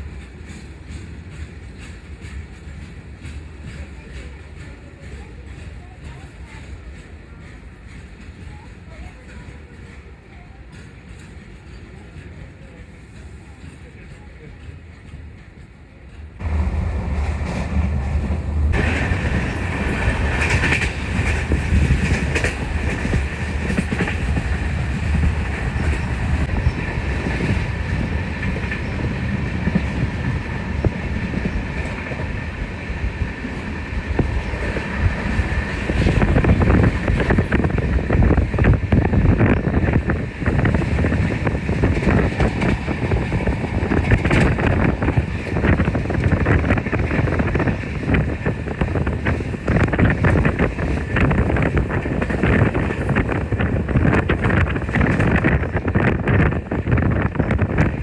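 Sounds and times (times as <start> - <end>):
passenger train rumbling on rails: 0.0 - 58.0.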